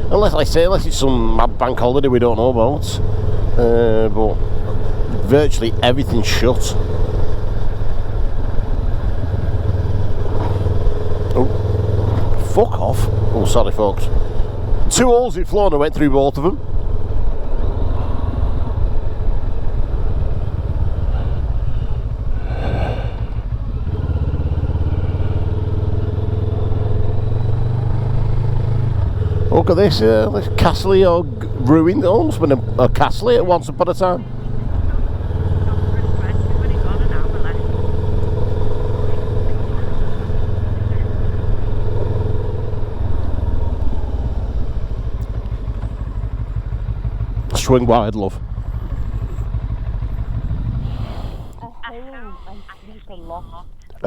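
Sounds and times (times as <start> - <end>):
motorcycle engine cruising: 0.0 - 54.0
wind rushing over microphone: 50.4 - 51.7.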